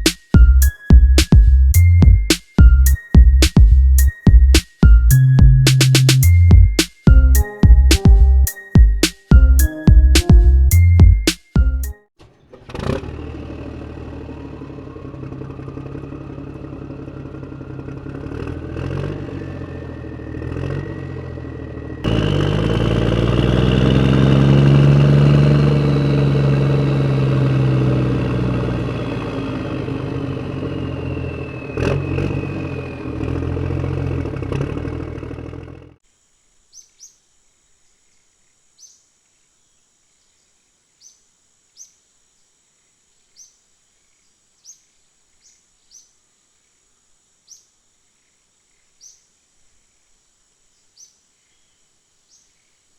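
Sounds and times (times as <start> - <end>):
faint insect chirps: 0.0 - 9.9, 36.0 - 52.9
small motor clattering hum: 12.2 - 19.8.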